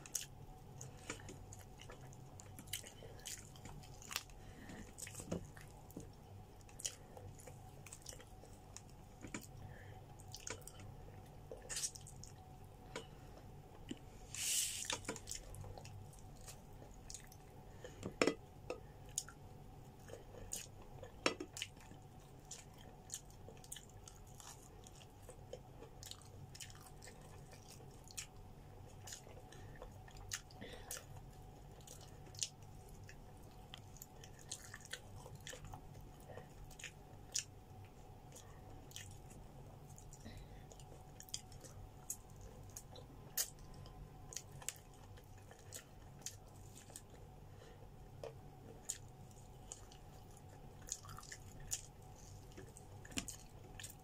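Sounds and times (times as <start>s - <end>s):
wet chewing: 0.0s - 13.1s, 14.8s - 17.9s, 18.8s - 47.3s, 48.1s - 54.0s
brief hiss: 14.3s - 14.9s.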